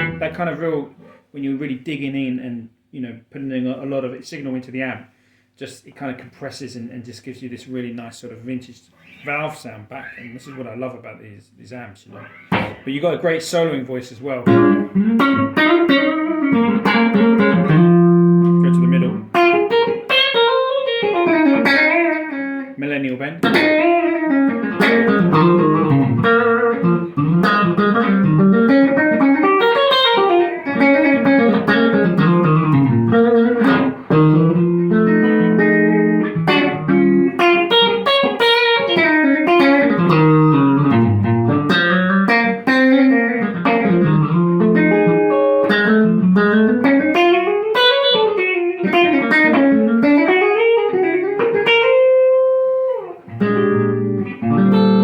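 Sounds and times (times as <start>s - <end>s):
electric guitar single-note runs: 0.0s - 0.4s, 23.6s - 42.3s, 53.4s - 55.0s.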